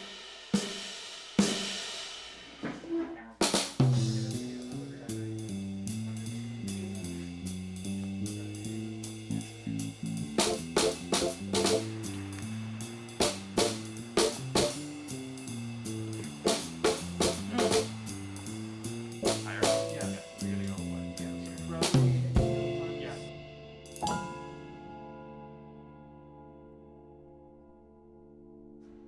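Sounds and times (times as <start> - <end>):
drum kit: 0.0 - 25.3.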